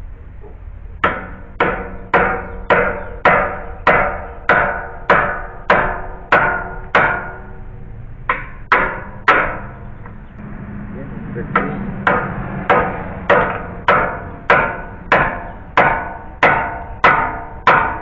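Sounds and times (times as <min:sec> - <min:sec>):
hammer striking nail: 0:01.0 - 0:07.4, 0:08.3 - 0:09.7, 0:12.1 - 0:18.0.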